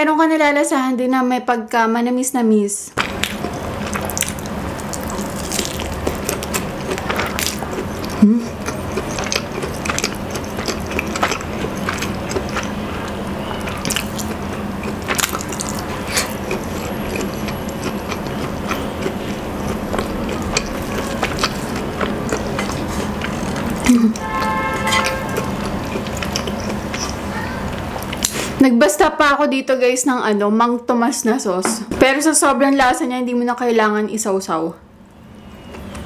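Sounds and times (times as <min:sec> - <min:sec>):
chewing mouth clicks and smacks: 0:03.0 - 0:27.3.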